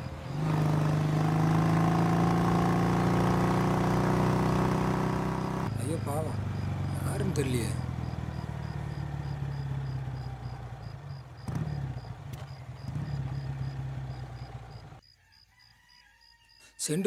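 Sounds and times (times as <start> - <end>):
motorcycle engine idling: 2.8 - 15.0.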